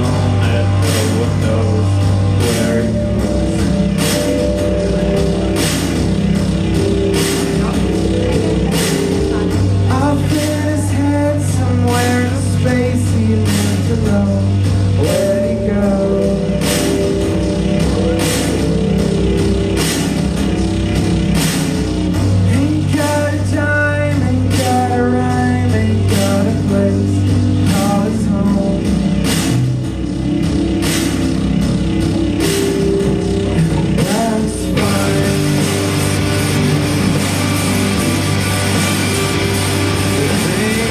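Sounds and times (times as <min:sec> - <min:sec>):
melody line: 0:00.0 - 0:23.3
bass: 0:00.0 - 0:40.9
drums: 0:00.0 - 0:40.9
guitar: 0:00.0 - 0:40.9.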